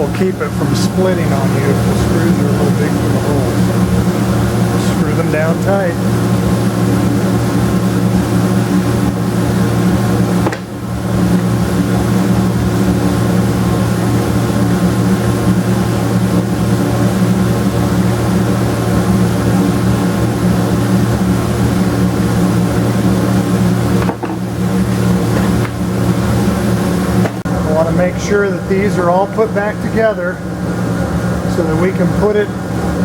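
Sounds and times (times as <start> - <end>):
steady mechanical hum: 0.0 - 33.0.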